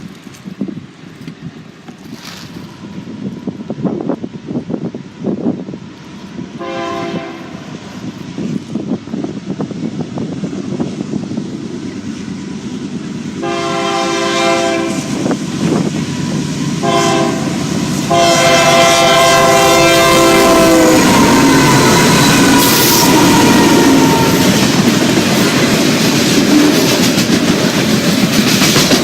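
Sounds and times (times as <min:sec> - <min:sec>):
train rumble: 0:00.0 - 0:29.0
locomotive horn blasts: 0:06.6 - 0:07.7, 0:13.4 - 0:15.2, 0:16.8 - 0:24.6
wheels clattering on rails: 0:24.0 - 0:29.0.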